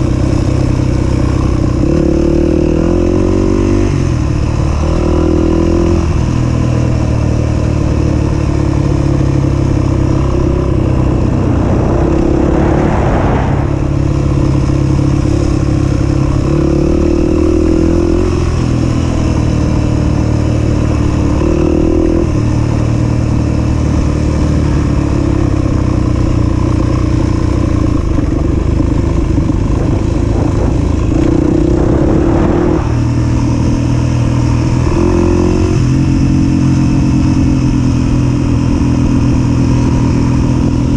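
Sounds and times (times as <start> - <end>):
rush of noise: 9.3 - 15.7, 29.2 - 34.8
dirt bike engine revving: 30.4 - 35.8.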